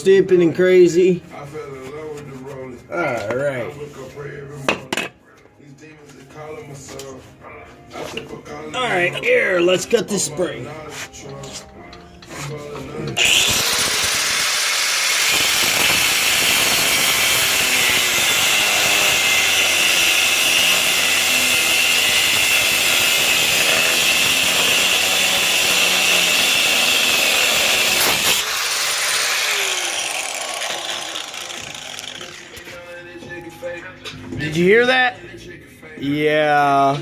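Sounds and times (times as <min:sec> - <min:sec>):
grinder wheel winding down: 0:13.2 - 0:32.6
angle grinder cutting steel: 0:13.2 - 0:32.8.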